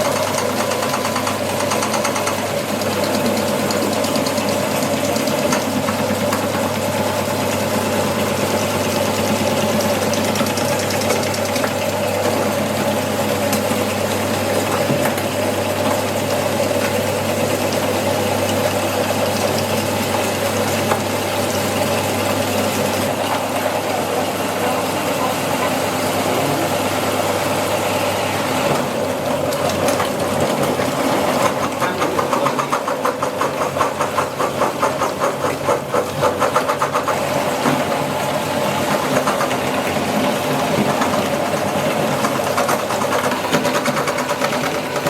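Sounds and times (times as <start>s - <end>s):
electric meat grinder running: 0.0s - 45.0s.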